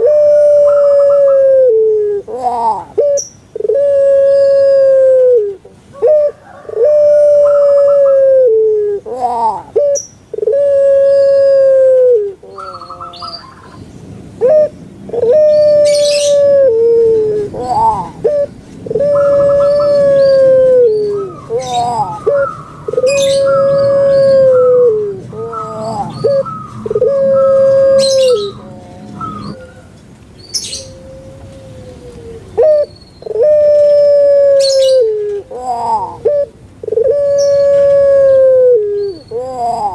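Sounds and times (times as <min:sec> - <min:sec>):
dove cooing: 0:00.0 - 0:13.8, 0:14.4 - 0:39.9
small birds chirping: 0:12.5 - 0:16.5, 0:17.1 - 0:33.5, 0:35.6 - 0:38.0.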